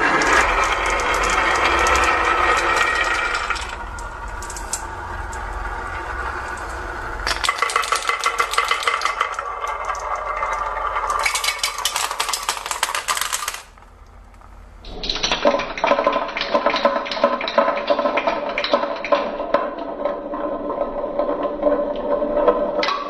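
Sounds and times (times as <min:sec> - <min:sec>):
marbles rolling on track: 0:00.0 - 0:23.0.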